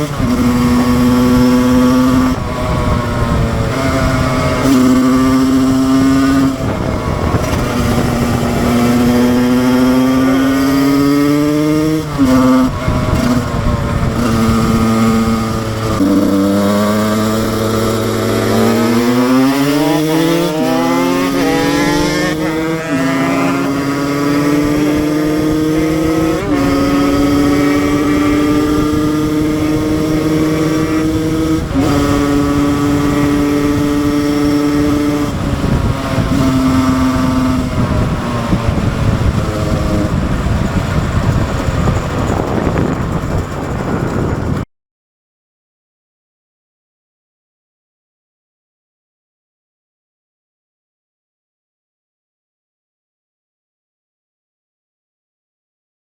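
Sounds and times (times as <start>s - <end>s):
motorcycle engine revving through gears: 0.0s - 44.6s.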